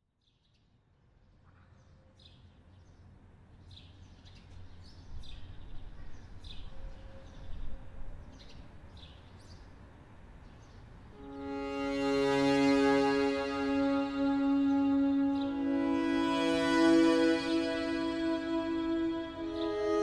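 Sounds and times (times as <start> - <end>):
small birds chirping: 3.6 - 11.0.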